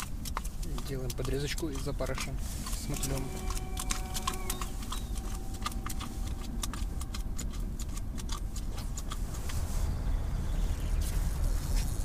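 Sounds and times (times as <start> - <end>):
light sharp clicks and ticks: 0.0 - 9.6
low rumble: 2.4 - 12.0.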